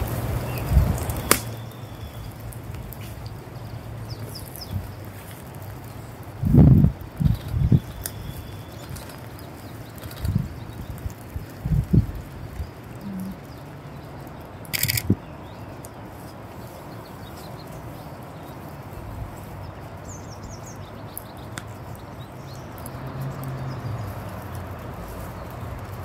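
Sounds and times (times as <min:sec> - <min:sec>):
small birds chirping faintly: 0:00.0 - 0:26.0
steady outdoor background hiss: 0:00.0 - 0:26.0
loud crunch: 0:14.7 - 0:15.2.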